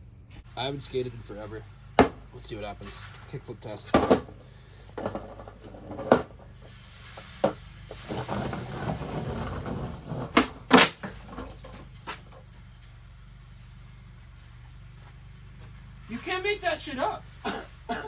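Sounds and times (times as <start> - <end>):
skateboard wheels rolling: 0.6 - 17.3
skateboard clacking: 1.4 - 12.6
skateboard smacking down: 2.0 - 12.6.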